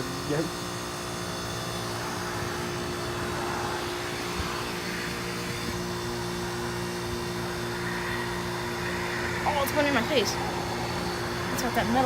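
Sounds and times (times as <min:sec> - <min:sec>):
compressor hum: 0:00.0 - 0:12.0.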